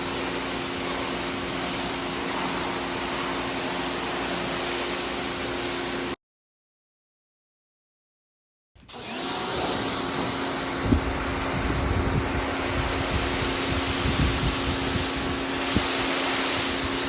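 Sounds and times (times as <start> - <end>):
pressure washer motor humming: 0.0 - 6.1, 8.9 - 17.0
pressure washer water jet hissing: 0.0 - 6.2, 8.9 - 17.0.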